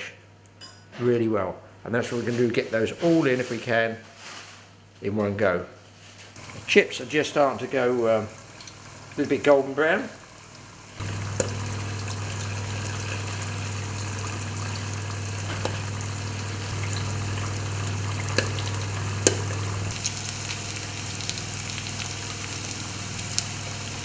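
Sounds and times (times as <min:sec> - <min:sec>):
food deep-frying in oil: 0:06.4 - 0:24.0
oil popping: 0:06.4 - 0:24.0
low hum: 0:10.5 - 0:23.8.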